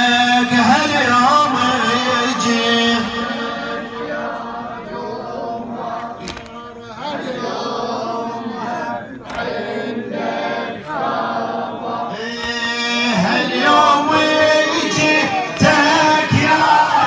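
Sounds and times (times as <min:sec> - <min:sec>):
men chanting in unison: 0:00.0 - 0:17.0
sharp slaps: 0:02.9 - 0:03.6, 0:06.0 - 0:06.8, 0:09.2 - 0:09.8, 0:12.4 - 0:13.0, 0:15.5 - 0:16.0.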